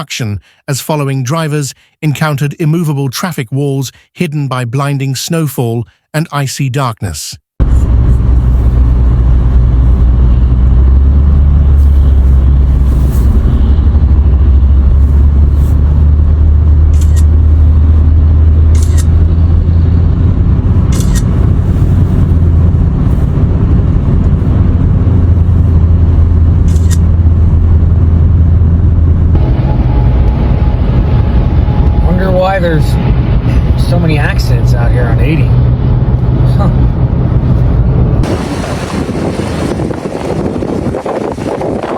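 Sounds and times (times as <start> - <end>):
vehicle driving rumble: 7.6 - 41.9.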